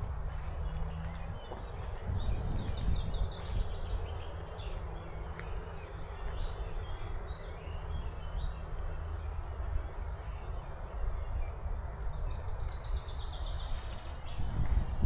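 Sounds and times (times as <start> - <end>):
wind rumbling on microphone: 0.0 - 7.4, 11.4 - 15.0.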